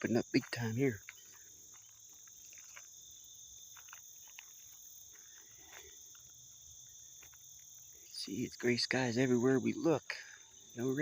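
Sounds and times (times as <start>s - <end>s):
soft scuffs and ticks: 0.0s - 8.6s
insects chirping: 0.0s - 11.0s.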